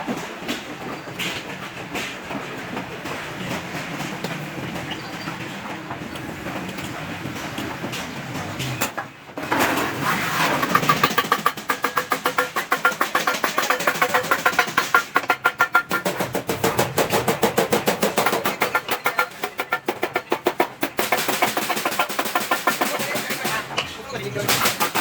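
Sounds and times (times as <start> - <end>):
hammer striking metal sheet: 24.4 - 25.0.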